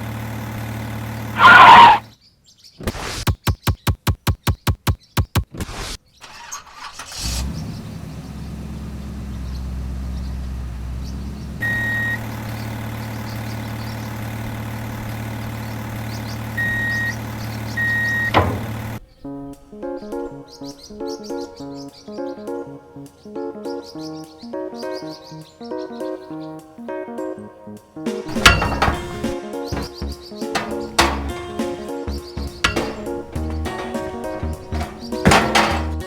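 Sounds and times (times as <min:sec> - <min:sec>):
tractor engine cranking: 0:00.0 - 0:02.0, 0:06.2 - 0:08.1, 0:11.6 - 0:21.0, 0:28.3 - 0:36.0
tractor engine idling: 0:00.0 - 0:02.0, 0:06.2 - 0:20.8, 0:28.3 - 0:36.0.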